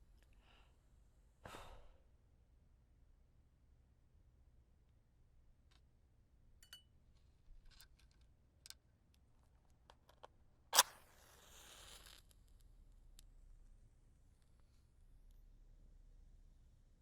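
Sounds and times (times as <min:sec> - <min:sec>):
wooden matches clicking: 0:09.9 - 0:12.4
match struck and hissing: 0:10.7 - 0:13.3.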